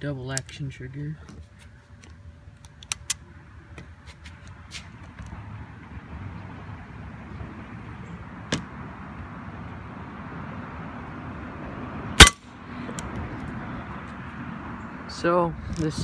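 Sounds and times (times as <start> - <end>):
air pistol shot crack: 12.2 - 12.4.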